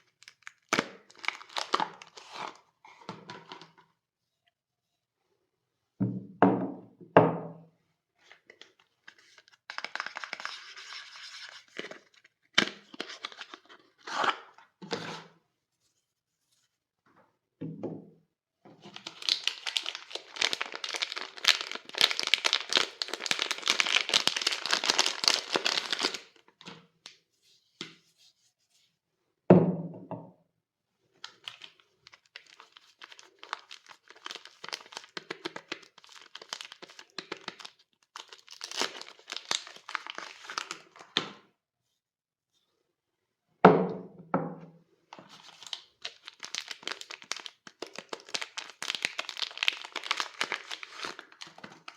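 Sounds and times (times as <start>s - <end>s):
soap wrapping crinkling: 0.0s - 3.8s, 8.2s - 14.8s, 18.8s - 27.2s, 31.2s - 41.4s, 45.2s - 51.9s.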